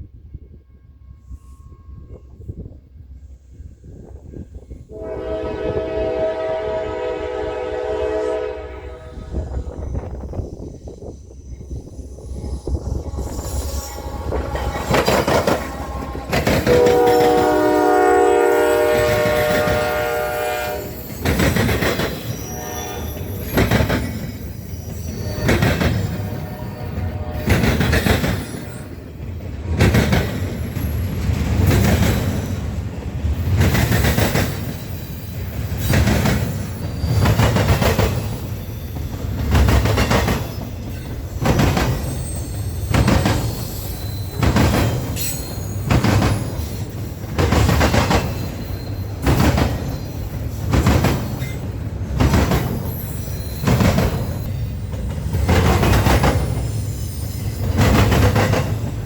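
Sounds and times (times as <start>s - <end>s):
heavy train surge: 0.0s - 59.0s
train wheels clattering over rails: 14.0s - 59.0s.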